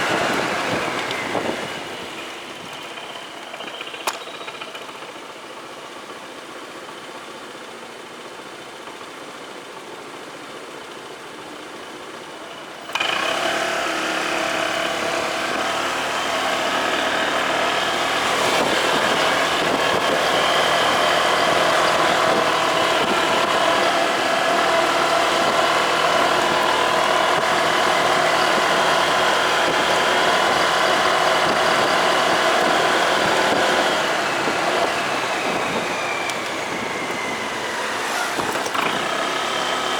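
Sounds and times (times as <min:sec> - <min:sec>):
motorcycle engine idling: 0:00.0 - 0:13.4
motorcycle engine and road noise: 0:00.0 - 0:39.9.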